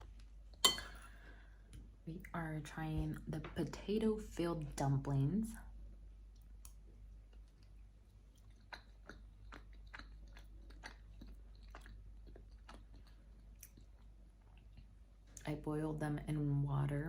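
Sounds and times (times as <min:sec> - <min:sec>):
person chewing food: 0:06.2 - 0:15.4.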